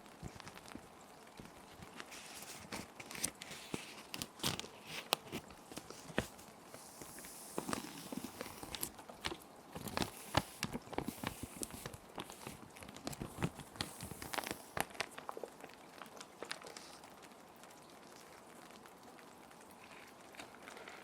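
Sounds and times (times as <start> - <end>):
gentle rain: 0.0 - 21.0
plastic sheet protectors crinkling: 1.8 - 17.0
paper sliding rustle: 1.9 - 15.0.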